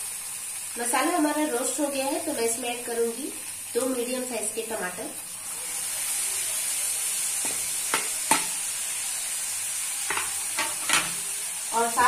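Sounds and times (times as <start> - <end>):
tomatoes sizzling in pan: 0.0 - 12.0
spatula scraping metal pan: 10.1 - 11.2.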